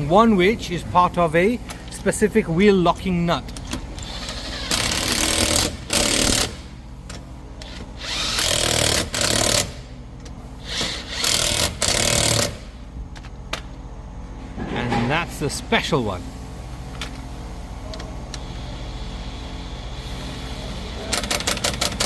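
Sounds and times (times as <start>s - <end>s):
impact wrench bursts: 3.6s - 6.8s, 7.6s - 10.0s, 10.6s - 12.8s, 21.0s - 22.0s.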